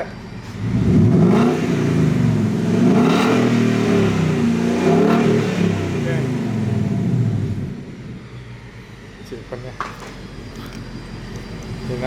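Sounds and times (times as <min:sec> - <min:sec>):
car engine revving: 0:00.4 - 0:09.2.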